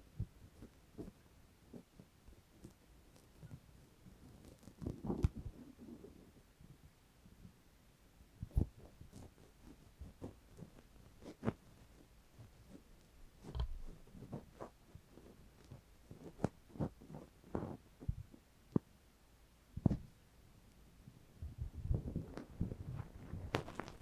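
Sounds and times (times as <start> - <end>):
scratchy rustles: 0.5 - 6.2, 8.5 - 18.1, 21.6 - 24.0
soft low thumps on microphone: 8.4 - 9.4, 16.2 - 18.9, 19.8 - 20.2, 21.4 - 24.0.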